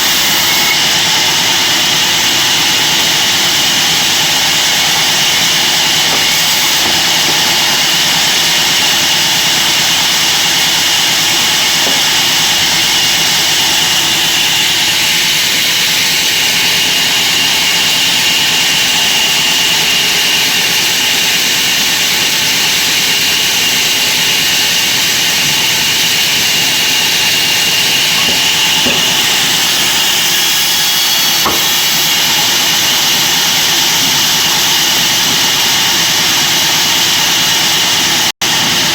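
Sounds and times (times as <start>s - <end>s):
band saw running: 0.0s - 38.9s.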